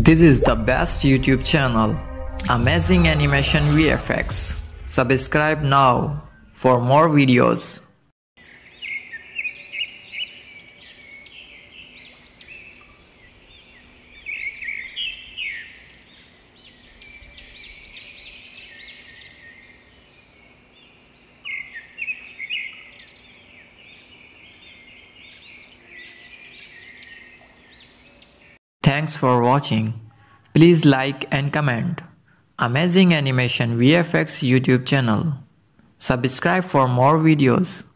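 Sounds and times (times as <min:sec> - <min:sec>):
small birds chirping: 0:08.4 - 0:28.6.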